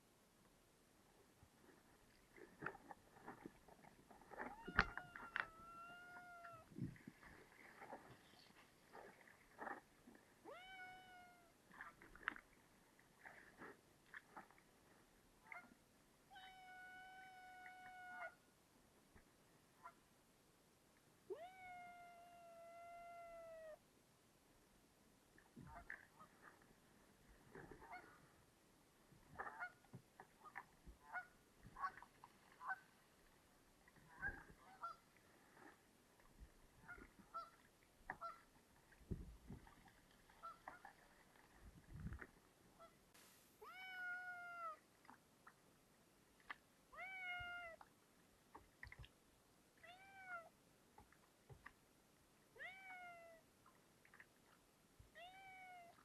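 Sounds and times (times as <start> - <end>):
cat meowing: 4.4 - 6.7, 10.5 - 11.5, 16.3 - 18.3, 21.3 - 23.8, 43.6 - 44.8, 47.0 - 47.8, 49.8 - 50.5, 52.6 - 53.4, 55.2 - 56.0.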